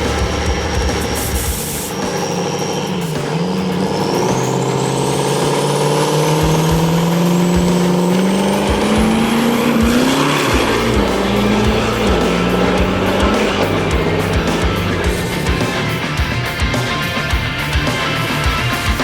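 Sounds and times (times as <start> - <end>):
truck engine accelerating: 0.0 - 19.0.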